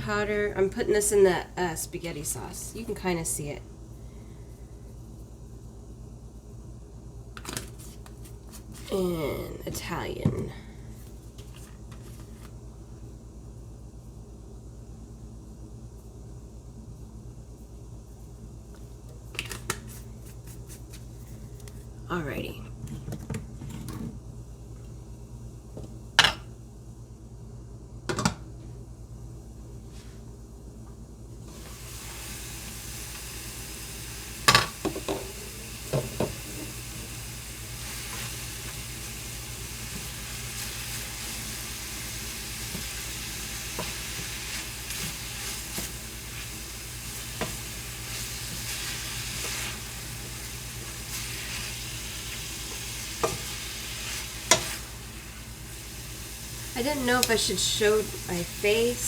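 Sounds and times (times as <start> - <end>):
meat sizzling in a pan: 31.5 - 59.0.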